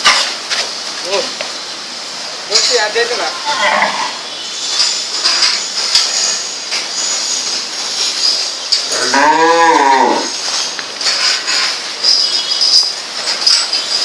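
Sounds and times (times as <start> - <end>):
steady hiss: 0.0 - 14.0
cow mooing: 3.3 - 4.3, 9.0 - 10.3.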